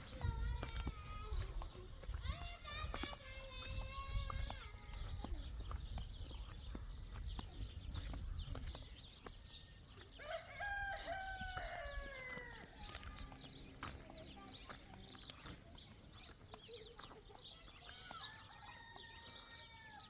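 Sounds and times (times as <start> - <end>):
rooster crowing: 10.2 - 12.7, 18.2 - 20.0.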